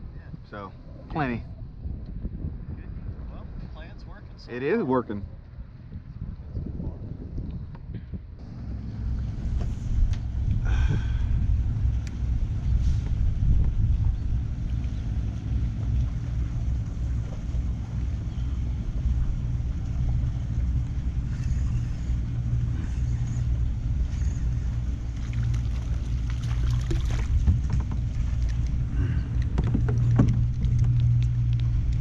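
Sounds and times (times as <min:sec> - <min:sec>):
motor humming: 0:08.4 - 0:32.0
light clicks and taps: 0:27.5 - 0:32.0.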